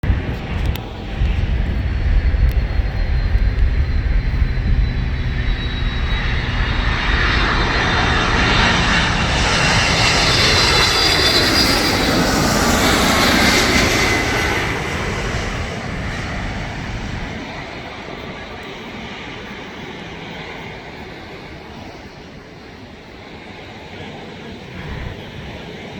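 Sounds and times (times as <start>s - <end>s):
wind buffeting microphone: 0.0s - 18.8s, 24.4s - 25.9s
jet airliner passing: 0.0s - 25.9s.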